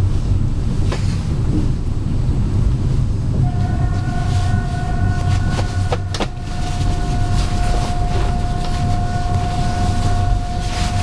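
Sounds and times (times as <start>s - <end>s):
train low rumble: 0.0s - 11.0s
steady whine with overtones: 1.8s - 11.0s.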